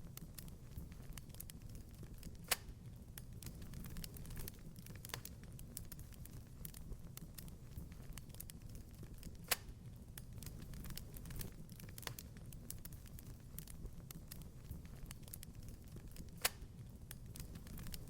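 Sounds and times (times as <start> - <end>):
sharp pops and snaps: 0.0 - 18.0
wood fire crackling: 0.0 - 18.0.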